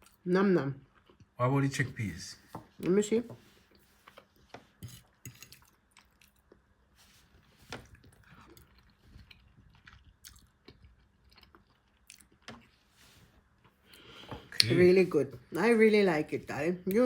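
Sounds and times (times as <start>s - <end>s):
person chewing: 3.7s - 6.7s, 7.8s - 12.9s.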